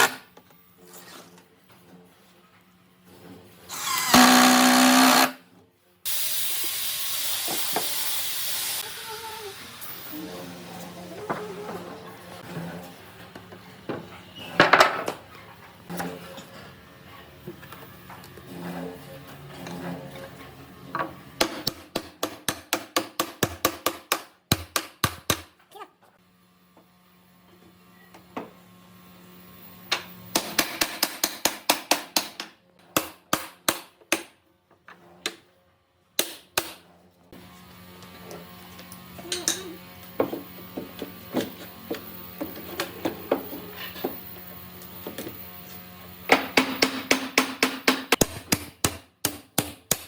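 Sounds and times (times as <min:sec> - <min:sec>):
power tool motor whining: 0:03.7 - 0:05.4
hammer striking wood: 0:46.3 - 0:50.0.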